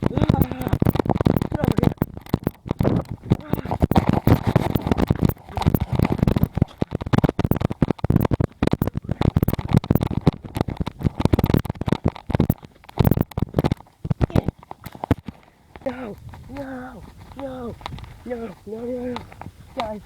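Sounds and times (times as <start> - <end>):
rustling and crackling near microphone: 0.0 - 20.0.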